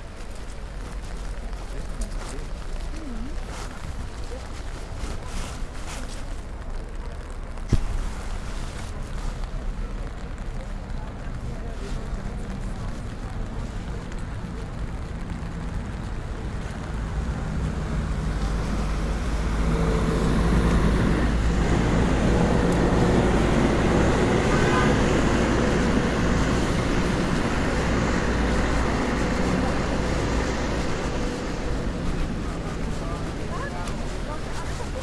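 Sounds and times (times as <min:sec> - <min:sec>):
rain hissing: 0:07.6 - 0:35.0
vehicle engine approaching: 0:12.3 - 0:35.0.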